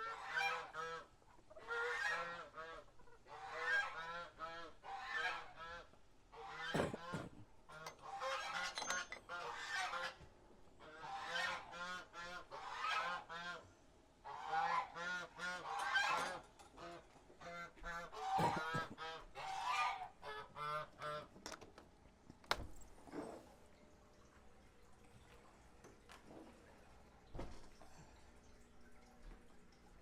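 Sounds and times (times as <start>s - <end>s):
geese honking: 0.0s - 10.2s, 10.8s - 21.3s.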